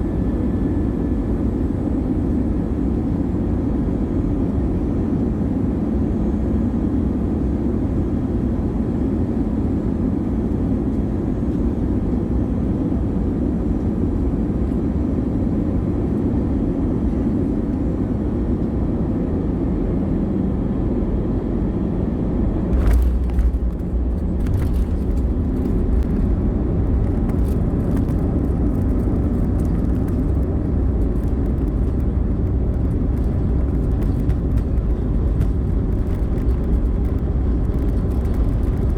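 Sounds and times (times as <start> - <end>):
airliner engines and airflow: 0.0 - 38.9
wheels touching down thump: 22.7 - 28.1.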